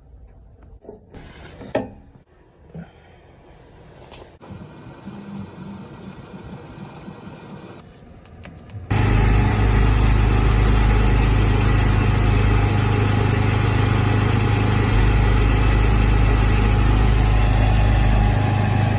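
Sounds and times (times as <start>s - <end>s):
carpet-cleaning machine running: 8.9s - 18.9s.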